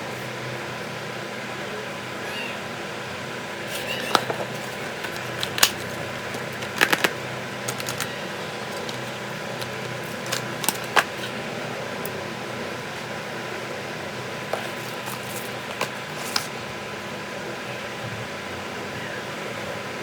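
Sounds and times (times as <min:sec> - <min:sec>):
steady fan-like hum: 0:00.0 - 0:20.0
phone and packaging clicks: 0:03.7 - 0:11.4, 0:14.6 - 0:16.5.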